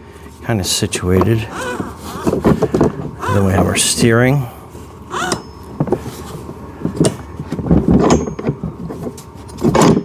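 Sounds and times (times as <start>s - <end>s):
hard plastic parts knocking: 1.1s - 3.7s.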